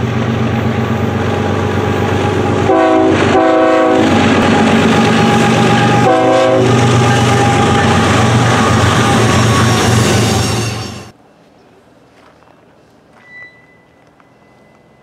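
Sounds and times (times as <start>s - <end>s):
diesel locomotive engine drone: 0.0s - 15.0s
train horn blasts: 2.4s - 11.1s.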